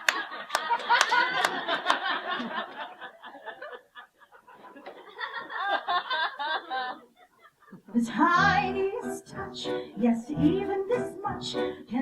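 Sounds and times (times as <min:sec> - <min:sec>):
audience laughing: 0:00.0 - 0:07.9.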